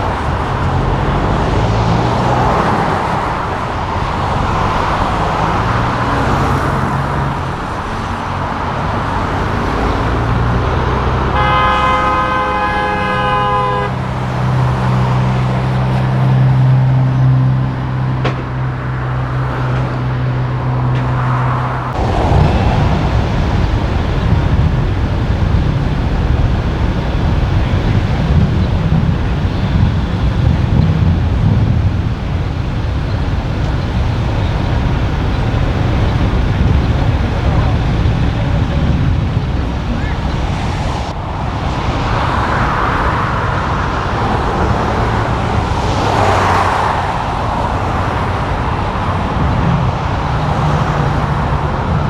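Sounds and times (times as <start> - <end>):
truck horn blast: 0.0 - 8.4, 9.3 - 17.0, 22.0 - 41.1
truck diesel engines running: 0.0 - 52.0.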